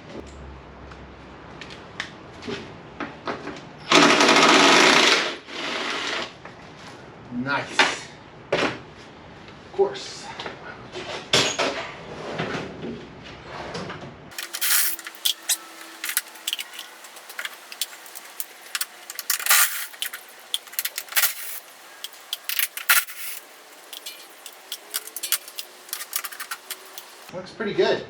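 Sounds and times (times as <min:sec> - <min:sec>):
loose screws and bolts rattling: 0:14.3 - 0:27.3.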